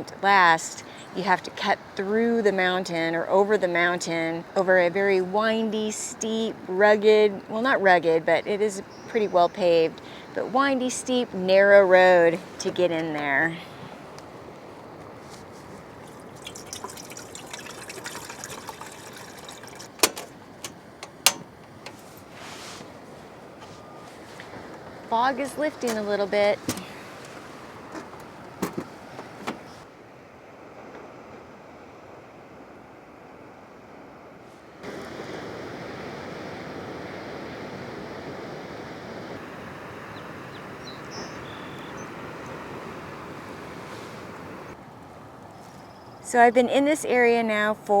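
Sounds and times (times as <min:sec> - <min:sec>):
ocean surf rushing: 0:00.0 - 0:29.9, 0:34.7 - 0:44.8
liquid trickling and dripping: 0:15.2 - 0:22.4.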